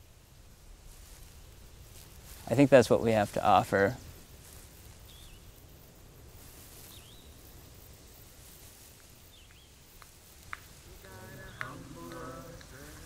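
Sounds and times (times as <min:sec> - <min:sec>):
voices: 0:02.4 - 0:04.1, 0:10.0 - 0:13.0
soft bird chirps: 0:04.9 - 0:05.6, 0:06.5 - 0:07.6, 0:08.9 - 0:10.0.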